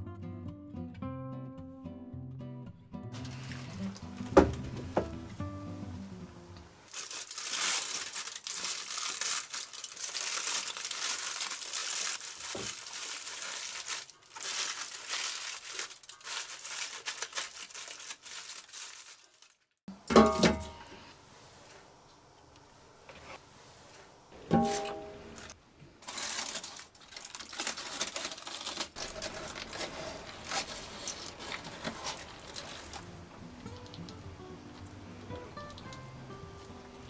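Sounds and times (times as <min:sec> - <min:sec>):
background music: 0:00.0 - 0:06.8, 0:30.9 - 0:37.0
crinkling and crumpling: 0:03.2 - 0:37.0.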